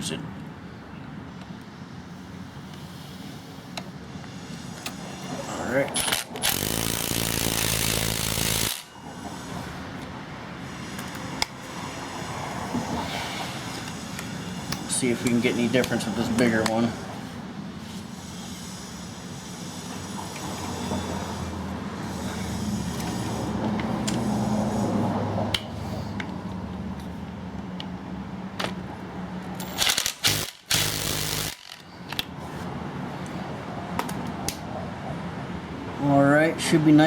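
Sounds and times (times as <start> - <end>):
steady background hum: 0.0 - 37.0
tool-handling clicks and scrapes: 2.6 - 11.8, 12.7 - 24.9
impact wrench hammering: 6.0 - 9.0, 29.6 - 31.9.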